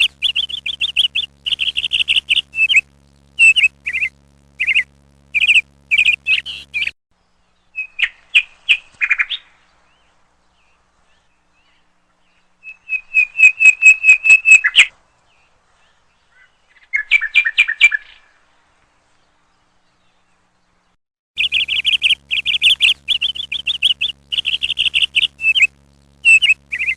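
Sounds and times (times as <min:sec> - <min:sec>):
woodpecker calling: 0:00.0 - 0:06.9, 0:21.4 - 0:26.9.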